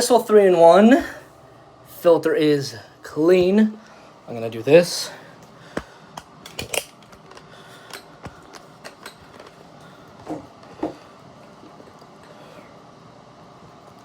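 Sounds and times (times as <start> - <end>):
plastic parts clicking and knocking: 5.8 - 9.6.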